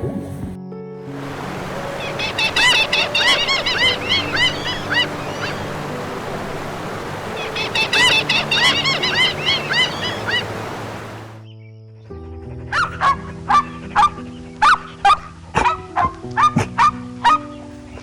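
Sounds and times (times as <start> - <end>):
background music: 0.0 - 18.0
rapid high chirping animal calls: 1.8 - 11.0.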